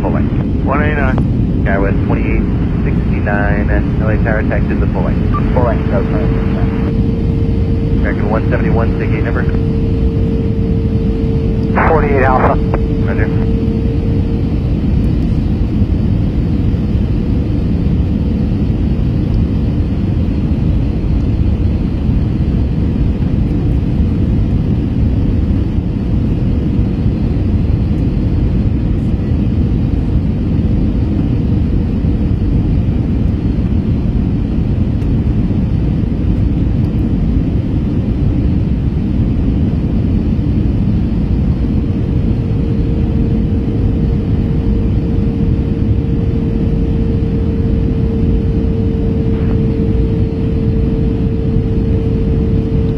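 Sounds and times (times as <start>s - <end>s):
faint steady hum: 0.0s - 52.9s
low rumble of engines and airflow: 0.0s - 52.9s.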